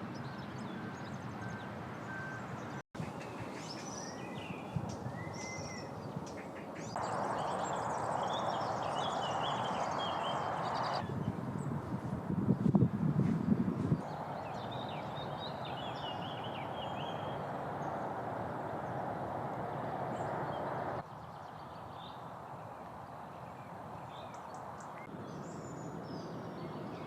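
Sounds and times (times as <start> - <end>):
bird chirps and calls: 0.4 - 11.2
whistled bird notes: 0.6 - 6.0.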